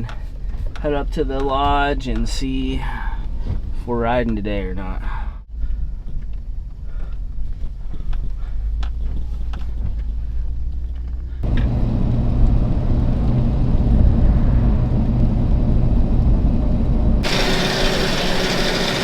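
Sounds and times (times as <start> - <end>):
engine and road rumble: 0.0 - 19.0
loud steady hiss: 17.2 - 19.0.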